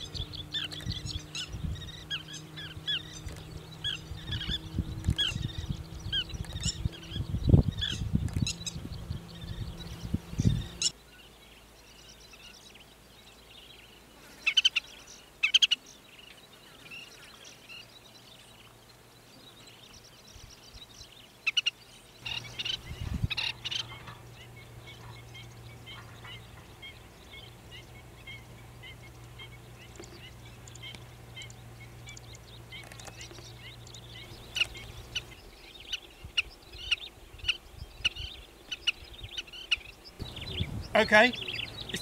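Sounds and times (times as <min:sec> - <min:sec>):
faint bird chirping: 0:00.0 - 0:42.0
sharp high bird calls: 0:21.4 - 0:42.0.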